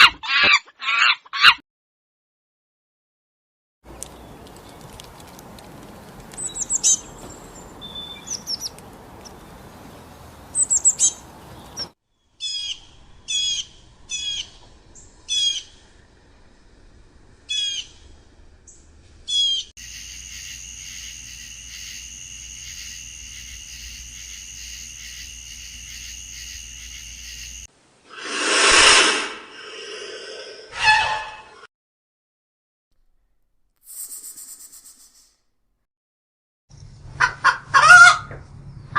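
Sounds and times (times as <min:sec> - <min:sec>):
small birds chirping: 0:03.9 - 0:16.0.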